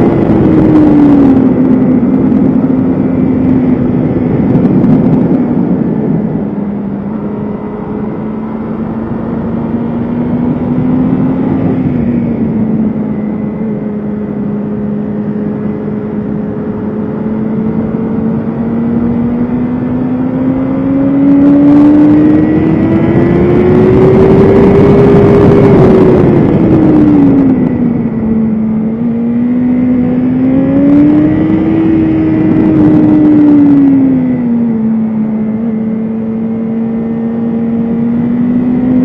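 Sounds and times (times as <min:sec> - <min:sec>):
motorcycle engine at speed: 0:00.0 - 0:39.0.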